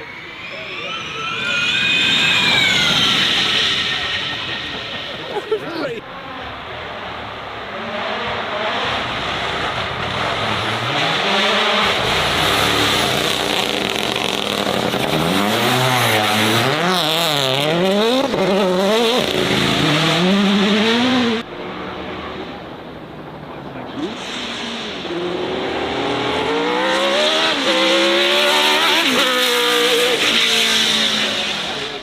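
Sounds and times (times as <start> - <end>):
race car engine revving: 0.0 - 32.0.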